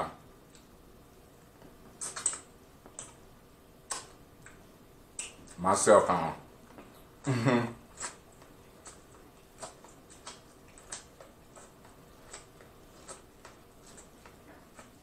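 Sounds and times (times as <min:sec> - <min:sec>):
corn on the cob crunching: 0:07.9 - 0:15.0.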